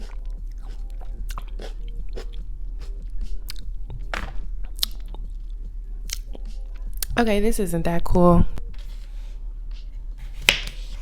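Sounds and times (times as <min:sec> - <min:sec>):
chewing tomato: 0:00.0 - 0:03.8, 0:04.6 - 0:07.1
steady low hum: 0:00.0 - 0:11.0.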